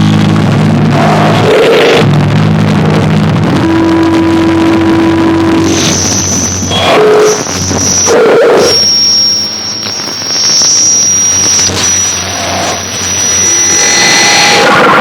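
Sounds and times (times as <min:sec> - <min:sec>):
harsh noise hiss and distortion: 0:00.0 - 0:15.0
high steady whistling tone: 0:03.7 - 0:14.8.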